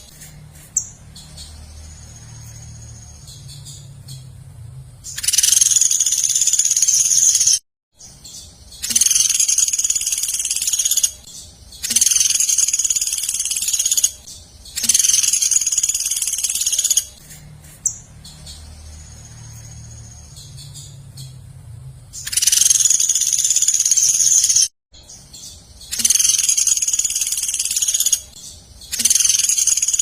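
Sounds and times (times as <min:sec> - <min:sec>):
songbird buzzing trill: 0:08.2 - 0:17.2, 0:25.4 - 0:30.0.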